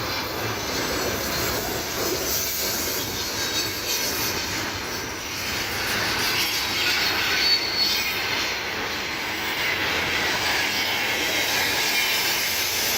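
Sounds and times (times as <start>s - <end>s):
high wheel squeal: 5.8s - 8.5s.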